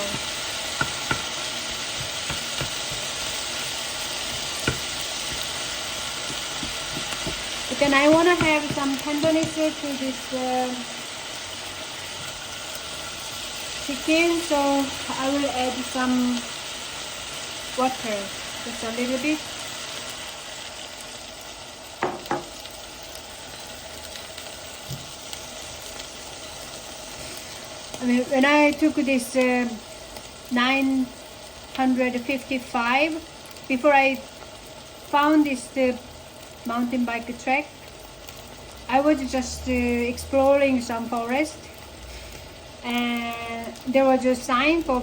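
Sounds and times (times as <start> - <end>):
food sizzling in frying pan: 0.0 - 45.0
utensil knocking against pan: 0.8 - 1.3, 2.0 - 3.0, 4.6 - 4.9, 6.3 - 9.6
utensil clicking against pan: 2.0 - 3.1.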